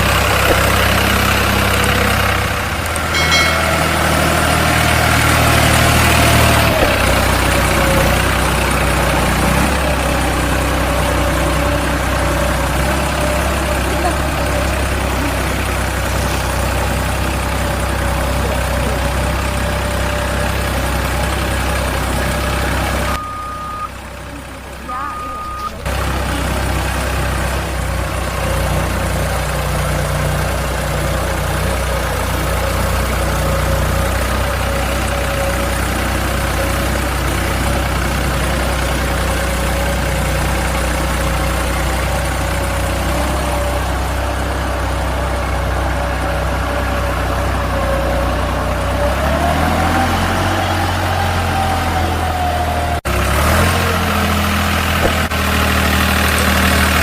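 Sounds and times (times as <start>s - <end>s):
thin whine: 0.0s - 8.9s
truck engine idling: 0.0s - 57.0s.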